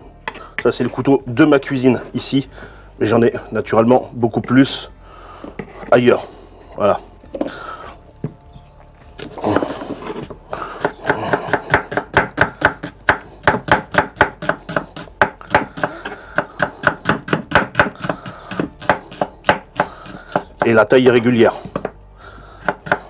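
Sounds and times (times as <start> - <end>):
knife chopping on cutting board: 9.2 - 20.7, 22.6 - 23.0.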